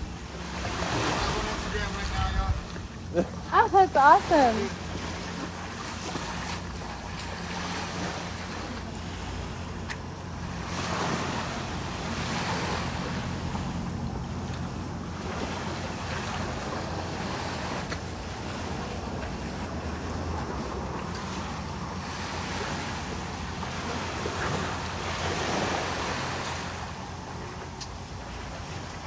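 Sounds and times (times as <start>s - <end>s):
ocean surf breaking: 0.0s - 29.0s
wind on microphone: 0.0s - 29.0s.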